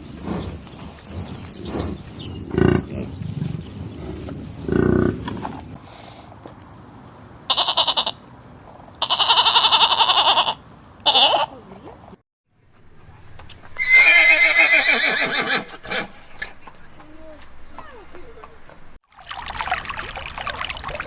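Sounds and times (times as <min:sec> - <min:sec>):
farm animal calls: 0:05.9 - 0:12.1.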